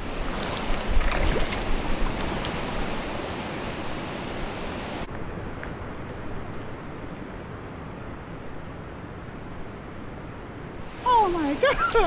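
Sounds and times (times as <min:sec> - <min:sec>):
flowing stream: 0:00.0 - 0:05.1, 0:10.8 - 0:12.0.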